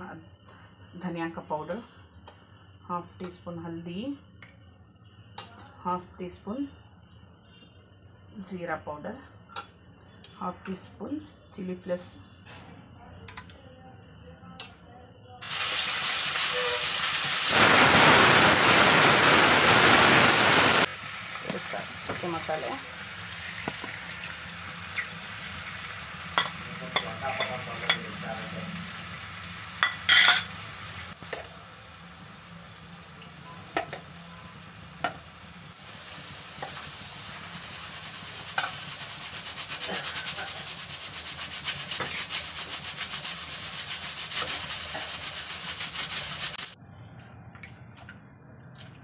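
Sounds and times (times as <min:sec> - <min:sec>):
chicken sizzling in a pan: 0:15.4 - 0:46.8.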